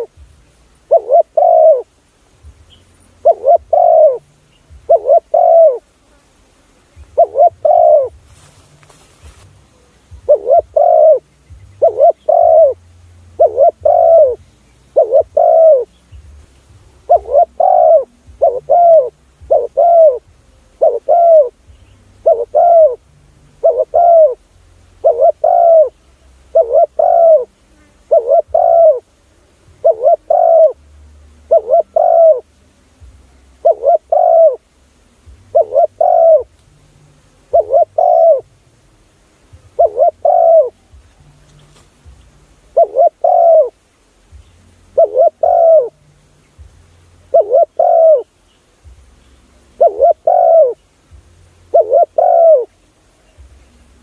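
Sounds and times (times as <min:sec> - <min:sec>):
dove cooing: 0:00.0 - 0:00.2, 0:00.8 - 0:02.0, 0:03.1 - 0:06.0, 0:07.0 - 0:08.2, 0:09.6 - 0:16.4, 0:17.0 - 0:30.8, 0:31.4 - 0:32.6, 0:33.5 - 0:34.8, 0:35.4 - 0:36.6, 0:37.4 - 0:38.6, 0:39.6 - 0:41.2, 0:42.6 - 0:43.8, 0:44.9 - 0:46.0, 0:47.3 - 0:48.3, 0:49.6 - 0:50.9, 0:51.7 - 0:54.0.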